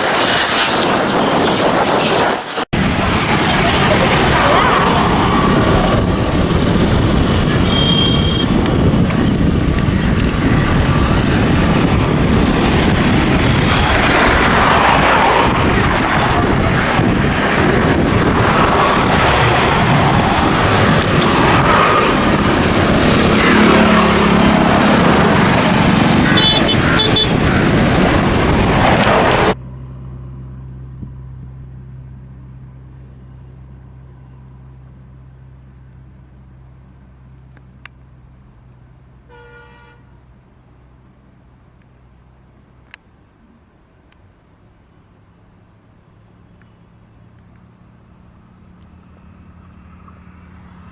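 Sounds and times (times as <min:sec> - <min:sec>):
train passing at speed: 0:00.0 - 0:29.6.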